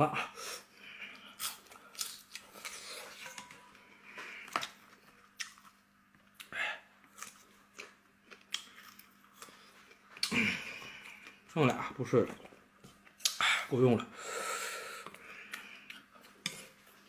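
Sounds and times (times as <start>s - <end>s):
person chewing food: 0.8s - 11.5s, 14.9s - 17.0s.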